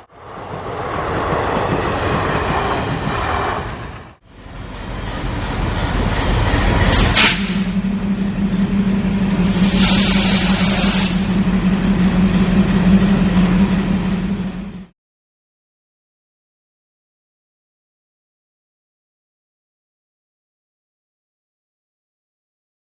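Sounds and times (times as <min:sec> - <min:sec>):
diesel locomotive humming: 0:00.0 - 0:14.9
air hissing: 0:06.9 - 0:07.8, 0:09.3 - 0:11.5.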